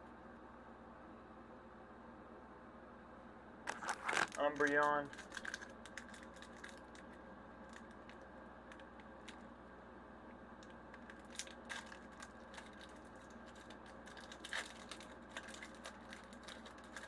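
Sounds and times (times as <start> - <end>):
steady low hum: 0.0 - 17.0
foil wrapper crinkling and tearing: 3.7 - 9.4, 10.6 - 17.0.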